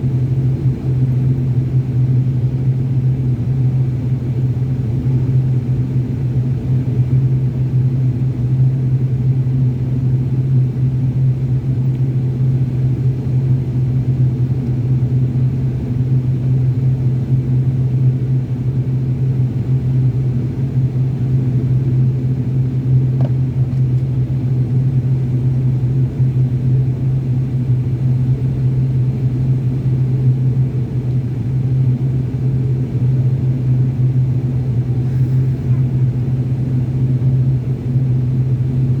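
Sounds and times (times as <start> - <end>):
aircraft cabin drone: 0.0 - 39.0.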